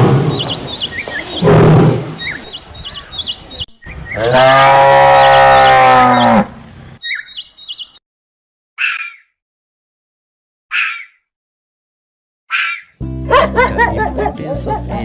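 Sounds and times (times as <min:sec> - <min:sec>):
small birds chirping: 0:00.2 - 0:08.0, 0:08.8 - 0:09.4, 0:10.7 - 0:11.3, 0:12.5 - 0:13.0
cow mooing: 0:04.2 - 0:06.5.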